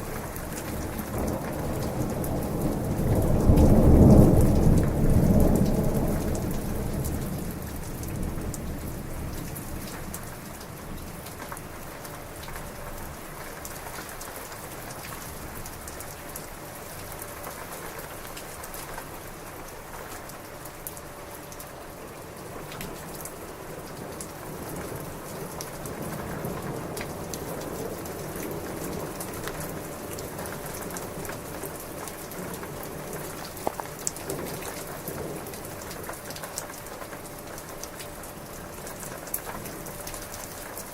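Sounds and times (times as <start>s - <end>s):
raindrops tapping: 0.0s - 12.8s, 22.6s - 40.9s
heavy rain: 0.0s - 40.9s
thunder rumble: 0.1s - 10.0s.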